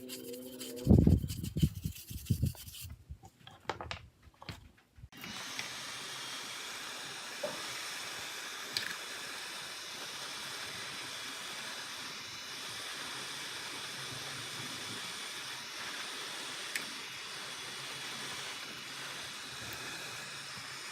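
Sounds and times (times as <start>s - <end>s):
spraying hiss: 5.2s - 20.9s.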